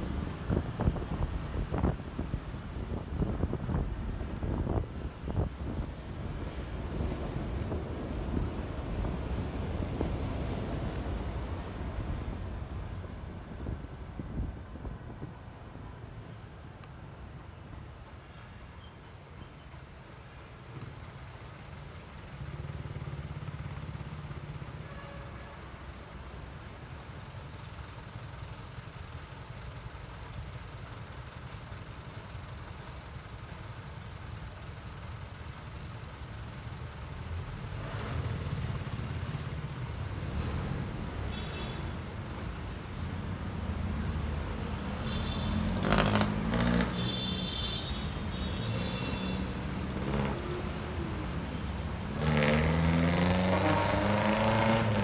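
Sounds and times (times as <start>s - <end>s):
wind rumble on microphone: 0.0s - 15.7s.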